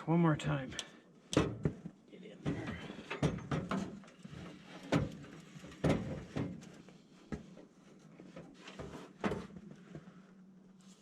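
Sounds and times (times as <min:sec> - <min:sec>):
equipment knocks and clunks: 0:01.3 - 0:04.0, 0:04.9 - 0:06.6.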